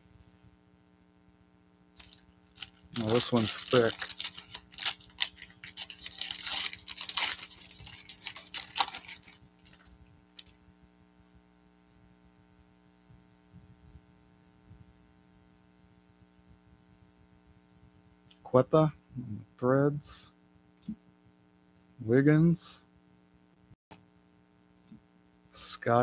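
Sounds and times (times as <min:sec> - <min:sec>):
faint electrical hum: 0:00.0 - 0:26.0
wrapper crinkling and tearing: 0:02.0 - 0:10.6.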